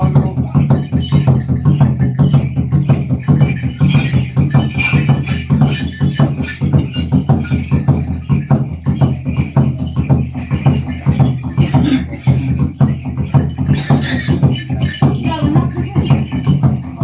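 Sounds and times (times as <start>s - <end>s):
fast percussion beat: 0.0s - 17.0s.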